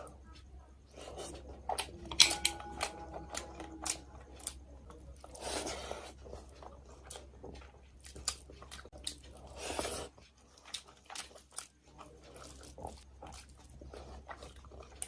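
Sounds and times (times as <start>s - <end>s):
chewing and crunching food: 0.0s - 15.0s.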